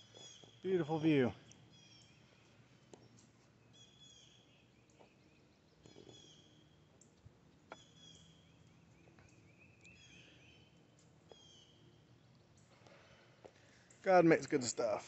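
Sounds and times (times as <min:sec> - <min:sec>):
faint high bird chirps: 0:00.0 - 0:06.8, 0:07.7 - 0:12.8.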